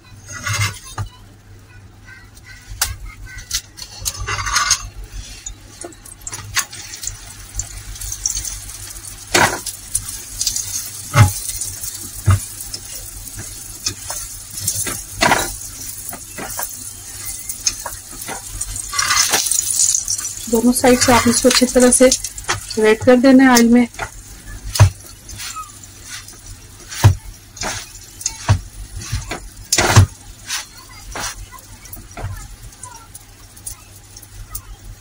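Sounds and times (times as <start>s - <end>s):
flatbread sizzling in oil: 0.0s - 1.2s, 2.0s - 35.0s
metal spatula scraping a griddle: 0.2s - 1.1s, 3.4s - 7.2s, 9.3s - 22.8s, 24.0s - 33.0s.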